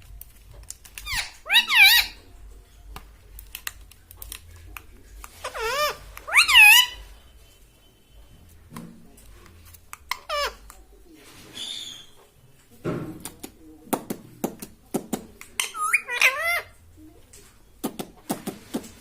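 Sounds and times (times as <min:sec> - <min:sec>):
parrot squawking: 0:01.0 - 0:02.3, 0:05.3 - 0:07.2, 0:10.1 - 0:10.7, 0:15.6 - 0:16.8.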